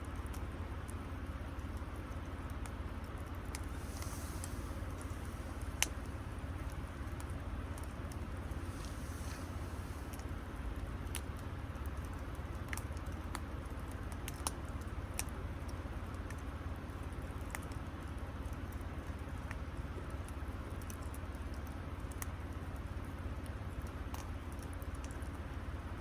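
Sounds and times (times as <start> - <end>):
campfire crackling: 0.2 - 25.8
low rumble: 3.6 - 10.2.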